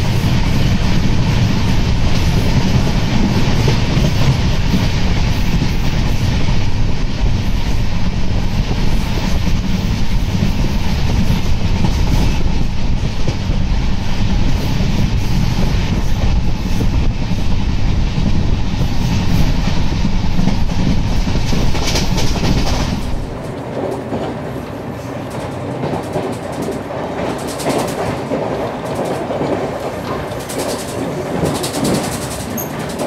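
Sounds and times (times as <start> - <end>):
train wheels rumbling on rails: 0.0 - 33.0
wheels clacking over rail joints: 20.3 - 33.0.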